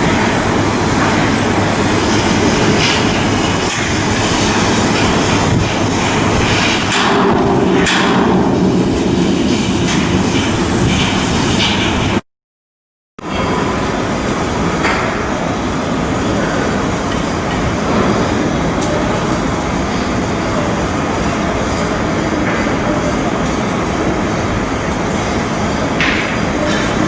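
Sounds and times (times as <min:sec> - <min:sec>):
shipyard mechanical work noise: 0:00.0 - 0:12.3, 0:13.2 - 0:27.0.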